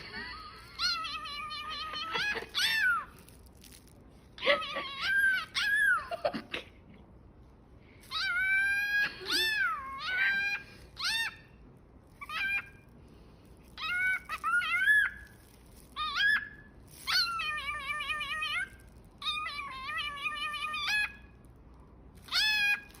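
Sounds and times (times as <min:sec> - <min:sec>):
cockatiel mimicking meows: 0:08.1 - 0:11.5, 0:16.0 - 0:21.3, 0:22.2 - 0:23.0.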